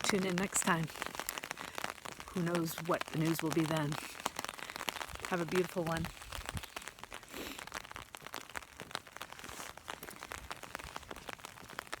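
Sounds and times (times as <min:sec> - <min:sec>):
light rain drops ticking: 0:00.0 - 0:12.0.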